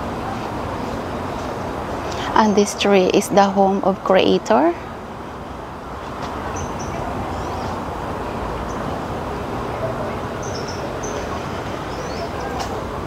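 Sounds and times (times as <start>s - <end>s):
bird chirps: 10.4s - 12.7s.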